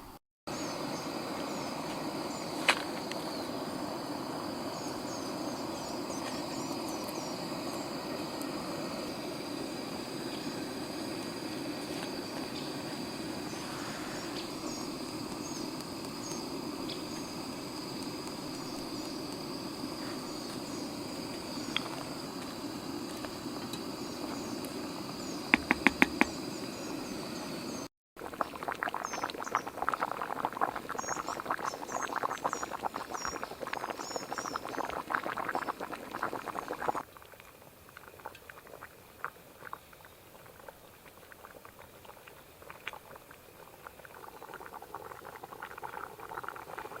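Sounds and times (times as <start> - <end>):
pot of sauce bubbling: 3.1 - 47.0.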